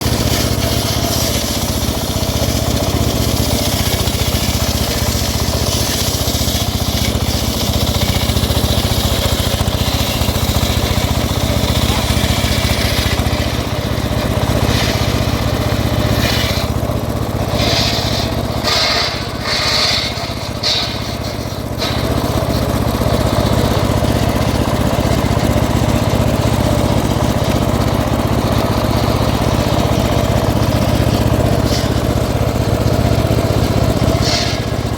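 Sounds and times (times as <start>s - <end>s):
engine-powered wood saw running: 0.0s - 34.9s.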